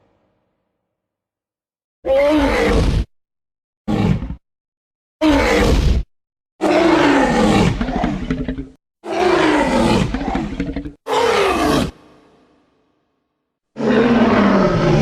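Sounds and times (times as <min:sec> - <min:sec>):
dinosaur roars: 0:02.1 - 0:03.1, 0:06.6 - 0:12.4, 0:13.8 - 0:15.0.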